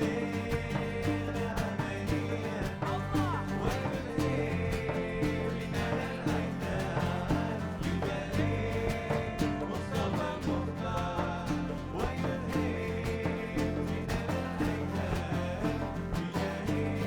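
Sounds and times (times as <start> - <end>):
bass: 0.0 - 17.0
plucked strings: 0.0 - 17.0
steady percussive beat: 0.0 - 17.0.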